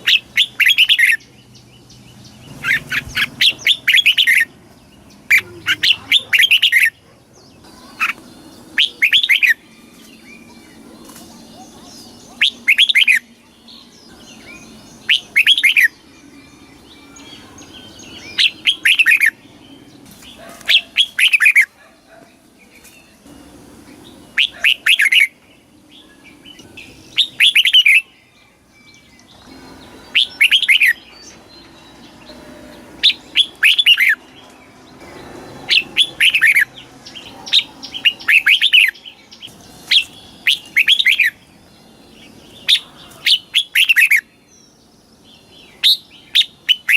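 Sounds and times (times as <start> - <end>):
bird singing whistled notes: 0.0 - 4.5, 5.1 - 21.7, 23.9 - 34.3, 35.0 - 46.9.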